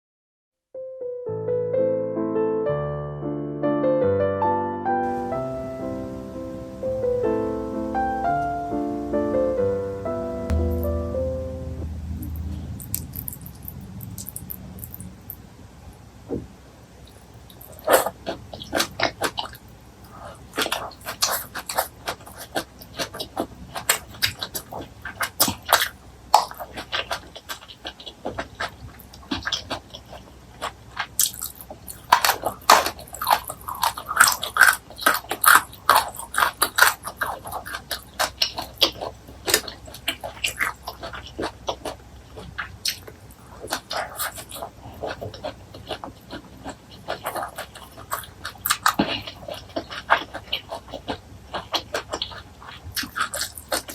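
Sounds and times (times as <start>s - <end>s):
chewing crisp food: 12.4s - 15.4s, 16.3s - 53.9s.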